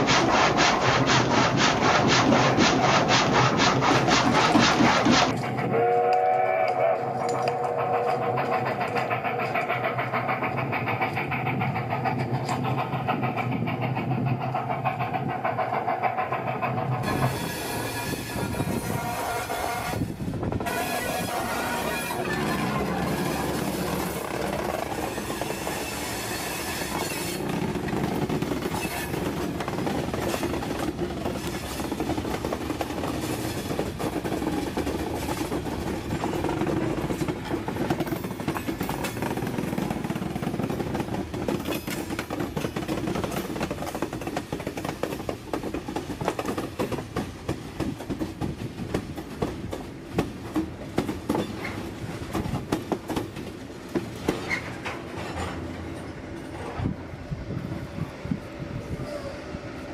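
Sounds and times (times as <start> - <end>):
railroad car rumble: 0.0 - 59.9
wheel clicks over rails: 6.7 - 17.1.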